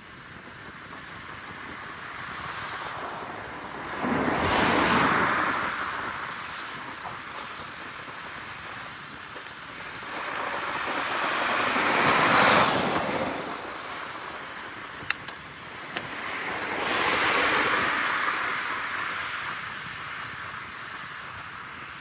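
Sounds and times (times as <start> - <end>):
vehicles passing: 1.8 - 22.0
high whine falling in pitch: 1.9 - 22.0
sharp clicks: 15.0 - 16.2.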